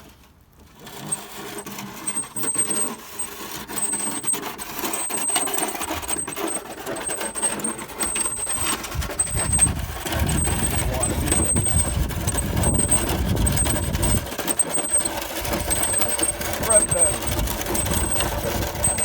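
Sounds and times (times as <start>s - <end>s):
rubble clattering and scraping: 0.0s - 19.0s.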